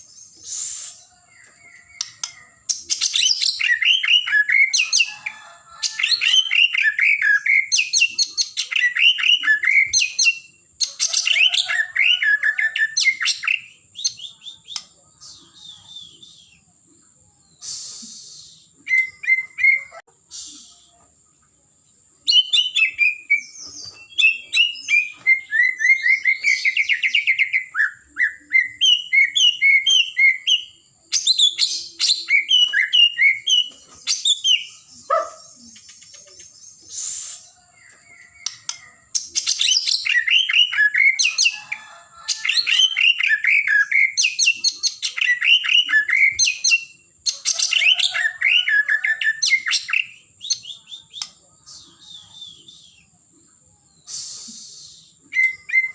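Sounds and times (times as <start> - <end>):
bird singing: 0.0 - 55.9.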